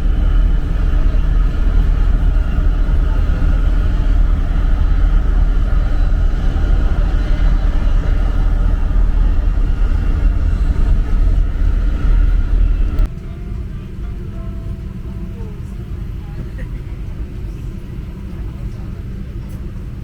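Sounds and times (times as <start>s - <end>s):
vehicle rumble: 0.0s - 14.0s.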